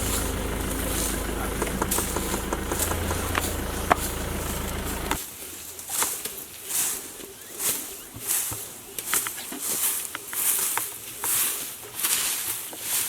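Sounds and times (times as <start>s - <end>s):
car engine idling: 0.0s - 5.2s.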